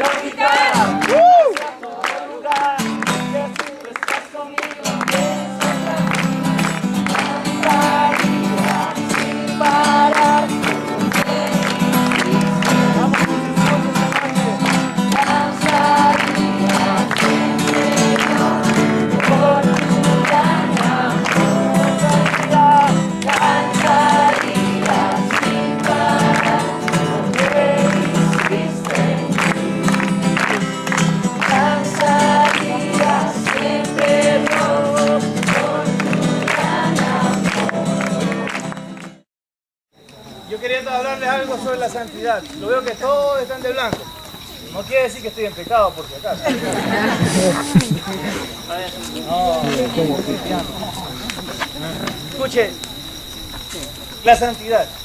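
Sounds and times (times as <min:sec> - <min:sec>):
voices singing together: 0:00.0 - 0:39.1, 0:46.4 - 0:52.7
strummed guitar: 0:02.8 - 0:03.6, 0:04.8 - 0:39.2.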